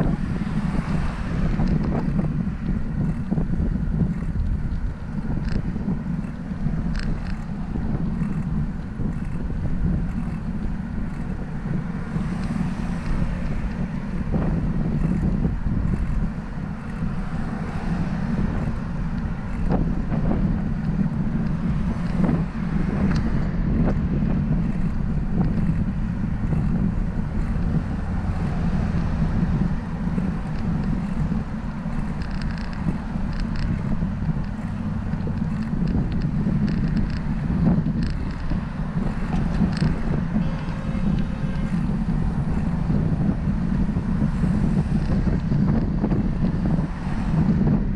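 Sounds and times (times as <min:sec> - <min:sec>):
road noise: 0:00.0 - 0:47.9
wind buffeting microphone: 0:00.0 - 0:47.9.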